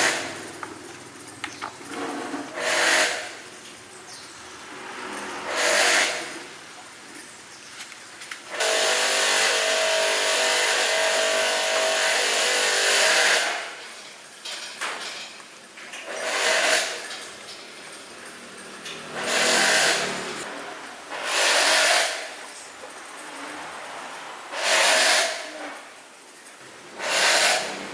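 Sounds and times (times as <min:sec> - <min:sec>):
power tool running: 0:08.5 - 0:13.5, 0:19.0 - 0:20.5.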